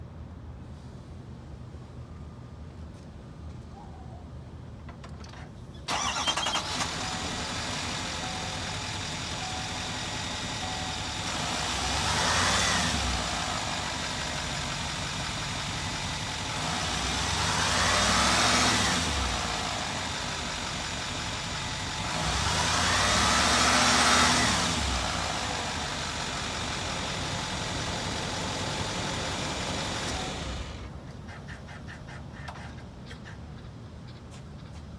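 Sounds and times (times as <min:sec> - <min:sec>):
faint engine ticking: 0:05.9 - 0:31.8
truck engine idling and revving: 0:05.9 - 0:33.6.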